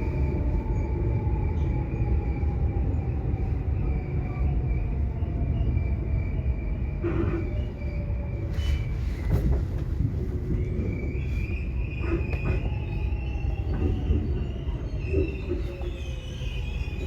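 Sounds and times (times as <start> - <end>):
subway train rumbling: 0.0 - 17.0.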